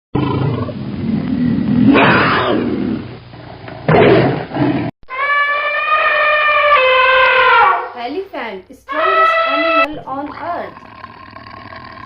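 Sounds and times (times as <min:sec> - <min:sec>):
big cat growling and roaring: 0:00.2 - 0:04.9, 0:10.2 - 0:12.0
high-pitched animal call: 0:05.1 - 0:08.0, 0:08.9 - 0:12.0.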